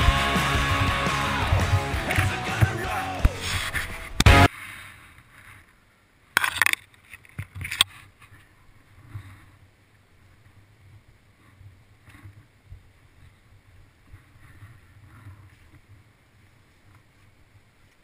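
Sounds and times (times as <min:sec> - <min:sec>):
dirt bike engine running: 0:00.0 - 0:03.6.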